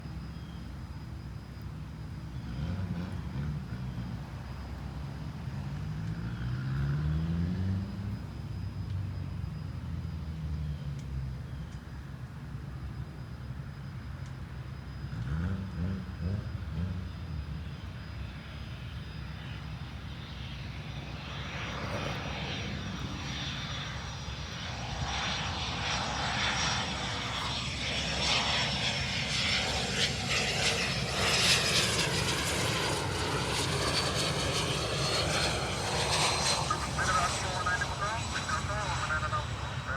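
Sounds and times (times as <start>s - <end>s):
jet engine high whine: 0.0s - 39.9s
jet low rumble: 0.0s - 39.9s
rush of jet noise: 36.3s - 39.9s.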